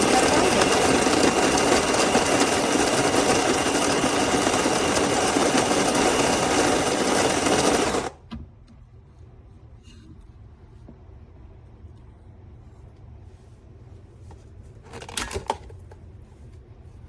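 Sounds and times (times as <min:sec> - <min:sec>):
electric coffee grinder grinding: 0:00.0 - 0:08.2.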